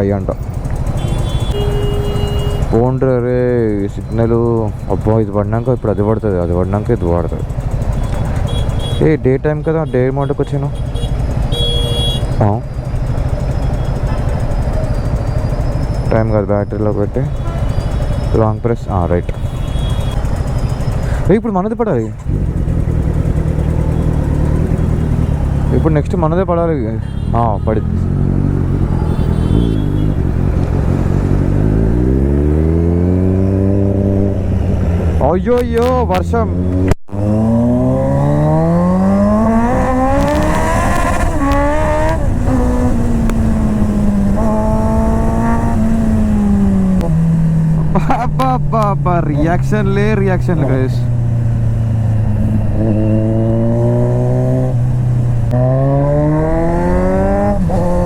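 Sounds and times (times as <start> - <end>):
motorcycle engine accelerating: 0.0 - 9.7, 10.4 - 58.0.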